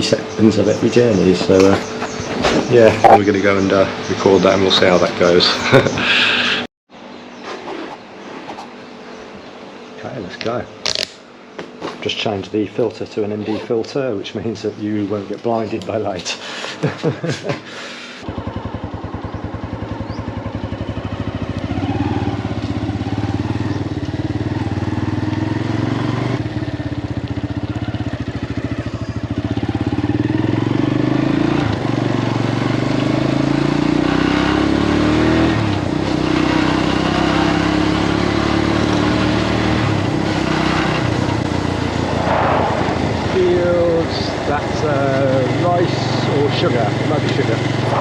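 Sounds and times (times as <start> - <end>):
motorbike engine revving: 18.2 - 48.0.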